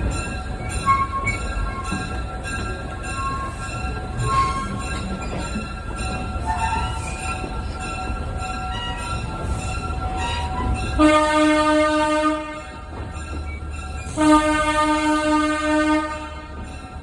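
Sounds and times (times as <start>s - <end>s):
locomotive engine rumbling: 0.0s - 17.0s
locomotive air horn blasts: 11.0s - 12.8s, 14.2s - 16.6s.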